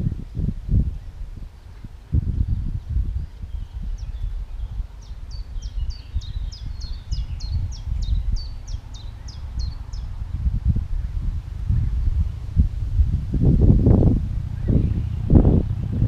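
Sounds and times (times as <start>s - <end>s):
wind rumble on microphone: 0.0s - 16.0s
songbird singing high notes: 1.0s - 10.1s.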